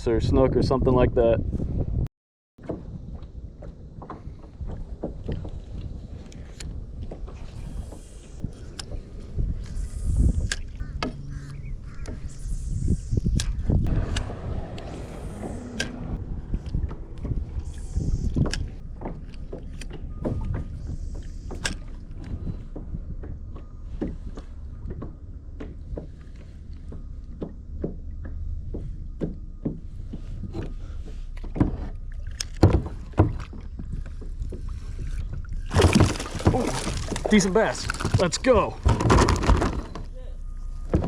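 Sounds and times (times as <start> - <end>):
wind and water against hull: 0.0 - 41.0
water splashing: 32.0 - 38.9.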